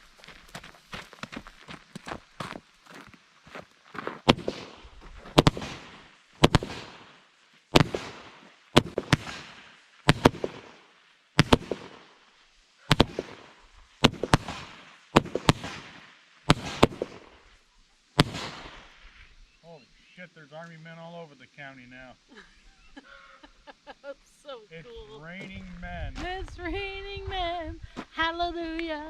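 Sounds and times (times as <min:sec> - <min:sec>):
firework bangs with echo: 0:04.3 - 0:10.8, 0:11.4 - 0:12.1, 0:12.9 - 0:17.3, 0:18.2 - 0:19.0.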